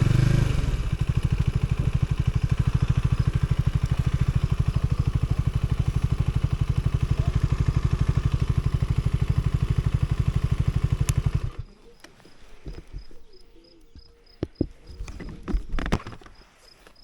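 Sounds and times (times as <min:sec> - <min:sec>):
motorcycle engine idling: 0:00.0 - 0:15.5
insects chirping: 0:01.0 - 0:17.0.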